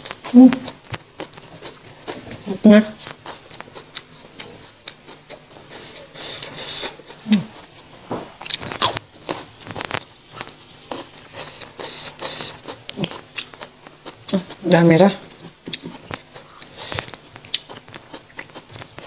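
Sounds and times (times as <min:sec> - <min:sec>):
crunchy chewing: 0:00.0 - 0:19.0
seed skins peeled by hand: 0:08.4 - 0:19.0.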